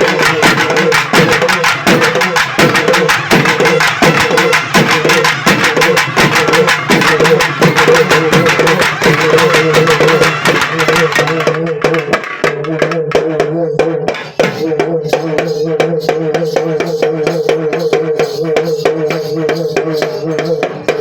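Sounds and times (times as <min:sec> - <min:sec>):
hourglass drums wailing drone: 0:00.0 - 0:14.0, 0:14.6 - 0:21.0
rapid drum strokes: 0:00.0 - 0:21.0.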